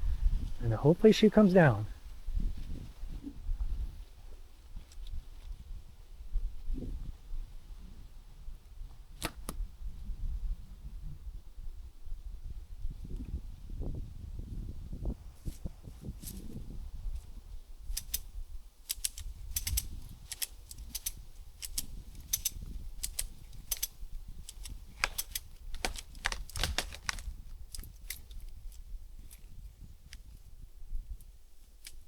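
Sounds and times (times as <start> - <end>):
ratchet strap clicking: 17.9 - 29.4.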